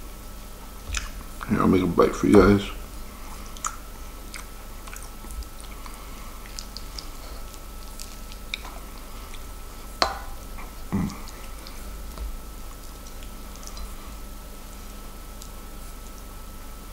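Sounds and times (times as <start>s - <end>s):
wet mouth clicks: 0.9s - 1.2s, 3.4s - 9.5s, 10.6s - 14.0s
close-up chewing: 2.8s - 16.9s.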